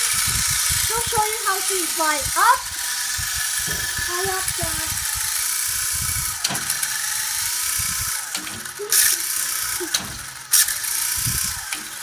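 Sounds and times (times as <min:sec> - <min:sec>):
toy helicopter motor whine: 0:00.0 - 0:12.0.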